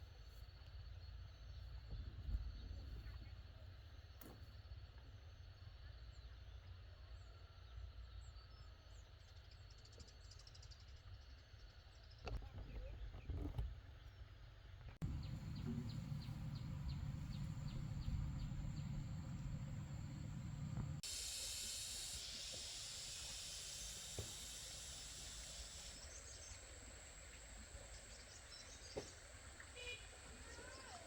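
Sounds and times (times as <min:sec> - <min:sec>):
faint bird chirps: 0:15.0 - 0:21.0, 0:23.7 - 0:31.0
wind rumble on microphone: 0:15.0 - 0:21.0.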